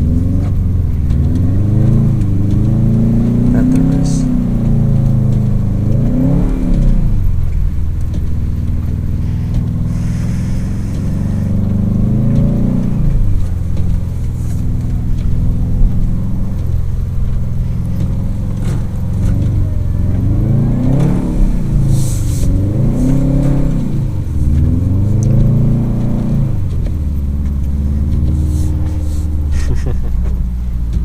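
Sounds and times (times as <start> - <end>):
car engine revving: 0.0 - 31.0
short hiss: 9.2 - 11.5.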